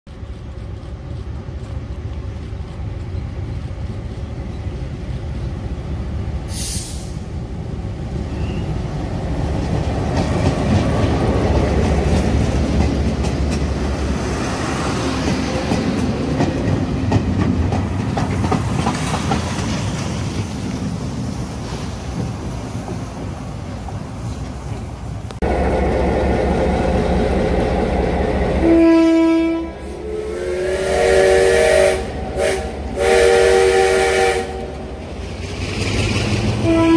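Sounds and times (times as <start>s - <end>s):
train rumbling: 0.1s - 36.9s
short hiss: 6.5s - 7.3s
wheels clicking over rail joints: 9.5s - 14.3s, 15.0s - 21.1s.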